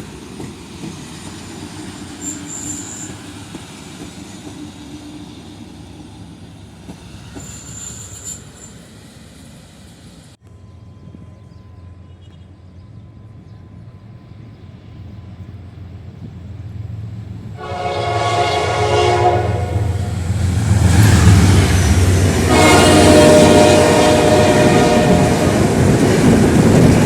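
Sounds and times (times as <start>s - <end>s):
train horn: 17.6s - 20.3s, 21.6s - 25.8s.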